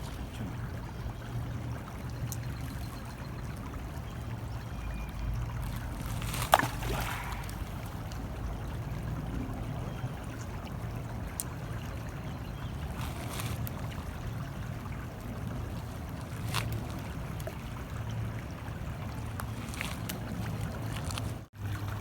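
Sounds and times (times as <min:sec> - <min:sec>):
rock splashing into water: 0:05.7 - 0:08.1.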